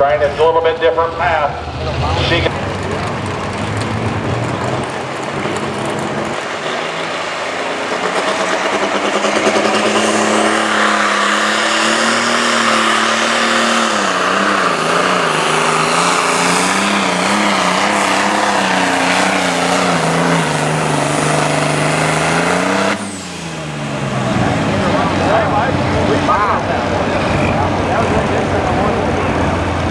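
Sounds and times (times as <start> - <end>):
tractor engine running under load: 2.2 - 10.6, 14.9 - 29.9.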